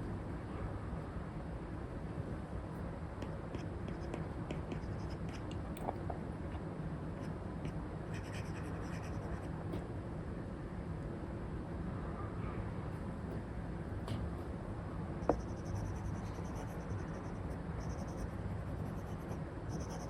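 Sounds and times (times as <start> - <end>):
steady white noise hiss: 0.0 - 20.0
pen ticking and scratching on screen: 3.2 - 6.0, 8.1 - 9.5, 15.2 - 20.0.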